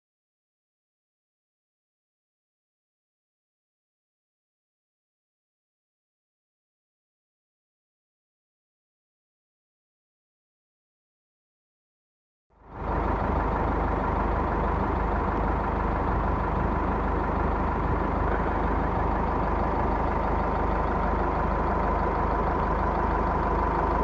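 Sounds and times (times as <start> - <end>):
vehicle engine running: 12.6 - 24.0.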